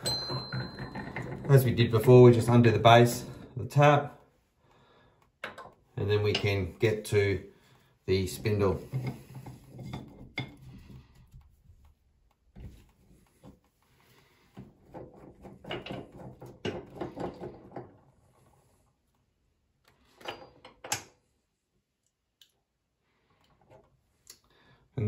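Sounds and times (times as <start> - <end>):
metal knocking on ceramic basin: 0.0 - 1.7.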